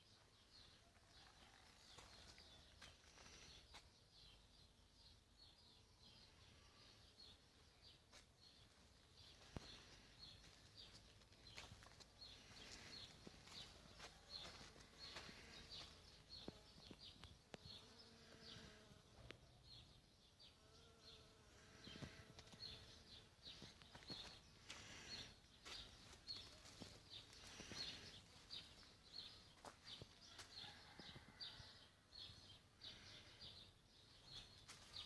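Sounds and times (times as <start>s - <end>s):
flying insects buzzing: 17.6s - 19.3s.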